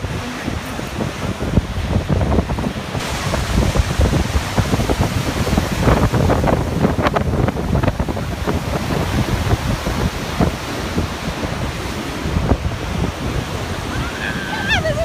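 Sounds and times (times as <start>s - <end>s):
waterfall rushing: 0.0s - 15.0s
wind buffeting microphone: 0.0s - 15.0s.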